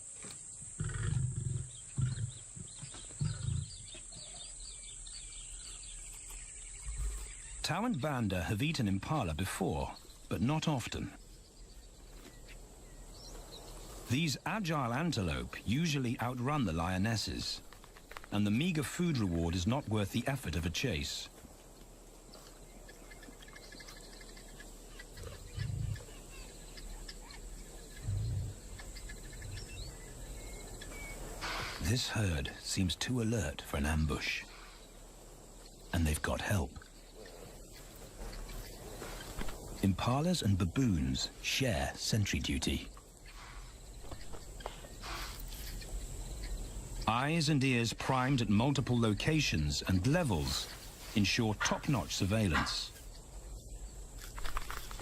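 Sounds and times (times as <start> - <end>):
birds chirping: 0.0 - 55.0
insects buzzing: 0.0 - 55.0
lion roaring and grunting: 3.2 - 3.8.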